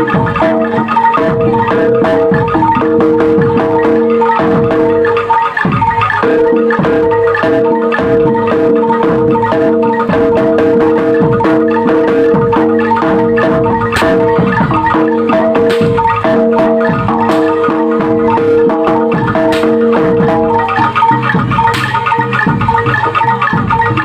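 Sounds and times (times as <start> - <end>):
drum strokes: 0.0 - 24.0
tuned mallet percussion: 0.0 - 24.0.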